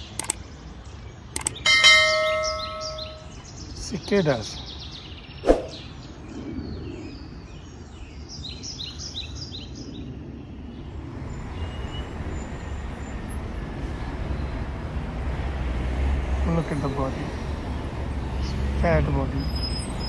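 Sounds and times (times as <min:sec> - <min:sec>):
bird chirping: 0:00.0 - 0:10.1, 0:16.4 - 0:20.0
road traffic rumble: 0:00.0 - 0:20.0.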